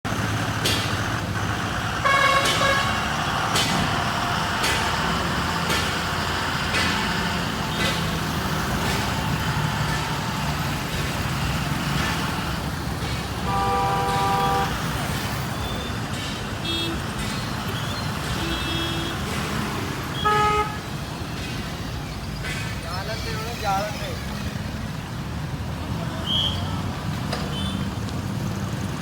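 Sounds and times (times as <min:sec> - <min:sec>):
heavy truck engine running: 0:00.0 - 0:23.0, 0:23.7 - 0:29.0
truck horn blasts: 0:02.0 - 0:03.2, 0:13.4 - 0:15.2, 0:20.1 - 0:20.9.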